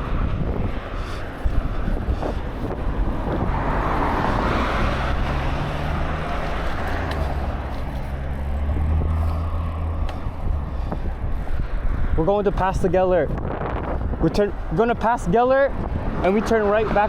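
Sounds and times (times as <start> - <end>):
low engine hum: 0.0 - 12.2
vehicle passing with tyre noise: 0.0 - 17.0
wind on microphone: 0.0 - 17.0.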